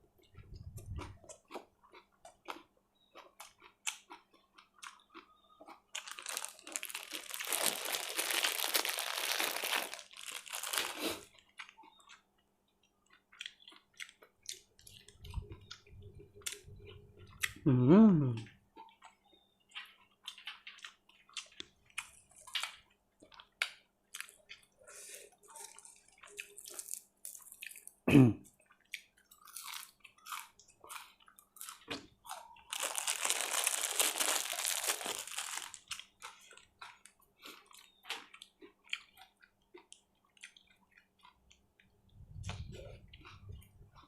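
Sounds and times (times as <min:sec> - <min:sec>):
chewing and crunching: 0:00.2 - 0:17.6, 0:18.3 - 0:44.0
person humming: 0:17.6 - 0:18.5.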